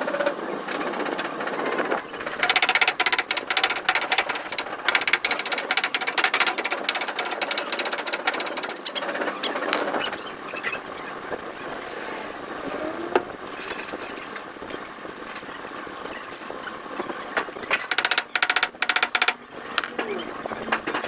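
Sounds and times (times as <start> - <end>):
rapid mechanical rattling: 0.0 - 10.0, 17.7 - 20.1
workshop noise: 2.0 - 10.0, 17.7 - 20.2
sharp click: 17.7 - 19.9.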